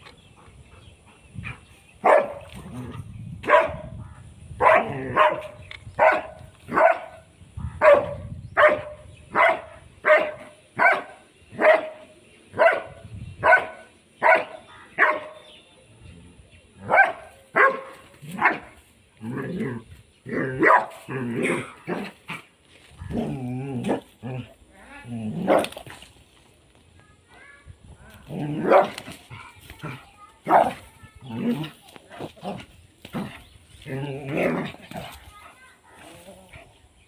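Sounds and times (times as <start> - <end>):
dog barking: 2.0 - 2.4, 3.4 - 3.9, 4.6 - 7.2, 7.8 - 12.0, 12.6 - 15.4, 16.9 - 18.7, 20.6 - 21.0, 30.4 - 30.8.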